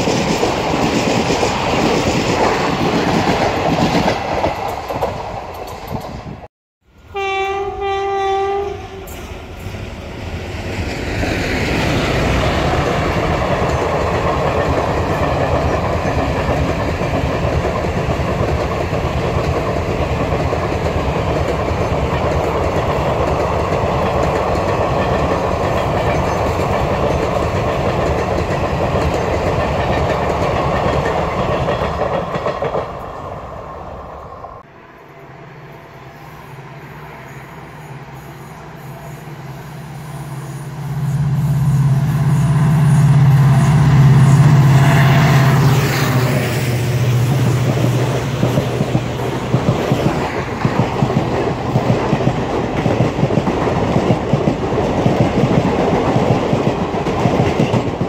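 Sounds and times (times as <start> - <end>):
rumble and rattle of train wheels: 0.0 - 6.5, 8.8 - 34.7, 37.2 - 58.0
train running past: 0.0 - 58.0
locomotive horn: 6.9 - 9.1, 38.9 - 46.8.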